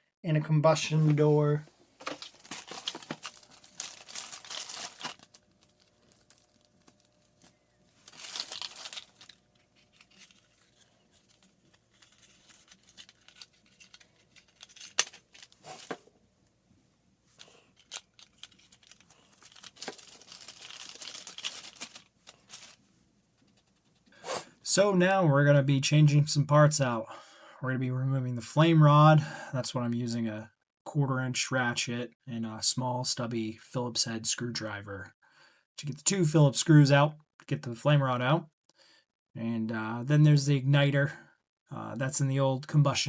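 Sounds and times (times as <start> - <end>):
plastic packaging crinkling: 2.0 - 16.1, 17.3 - 22.9.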